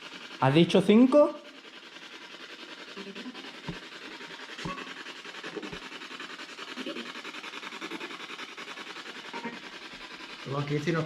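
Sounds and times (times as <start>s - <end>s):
pulsing radio static: 9.3s - 9.6s.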